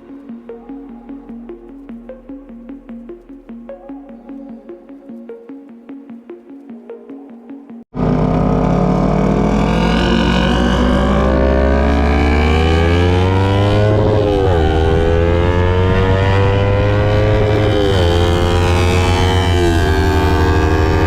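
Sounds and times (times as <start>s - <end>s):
motorcycle engine accelerating: 7.9s - 21.0s.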